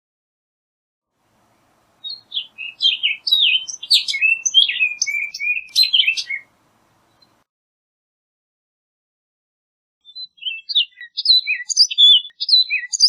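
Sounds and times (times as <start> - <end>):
bird singing whistled notes: 1.4 - 7.4, 10.0 - 13.0.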